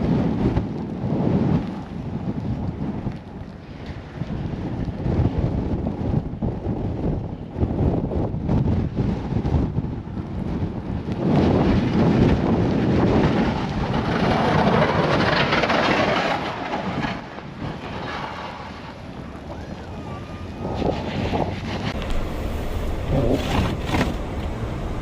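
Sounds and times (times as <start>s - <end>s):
blizzard wind gusting: 0.0s - 25.0s
vehicle running: 21.3s - 25.0s.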